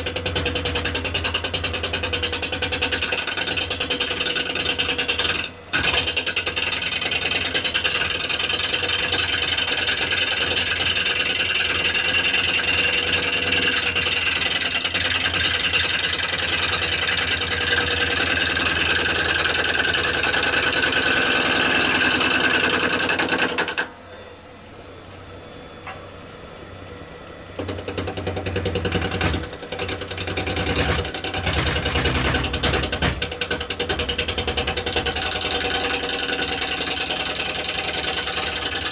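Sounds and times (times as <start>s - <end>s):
wood lathe running: 0.0s - 23.9s, 25.0s - 38.9s
gouge clattering on turning wood: 27.6s - 38.9s.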